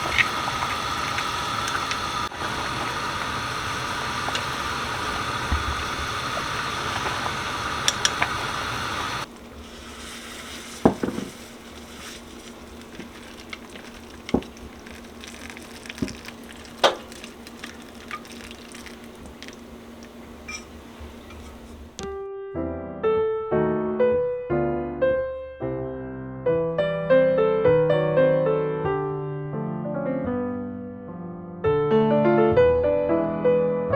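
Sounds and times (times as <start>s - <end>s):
electric piano music: 0.0s - 9.3s, 21.3s - 33.9s.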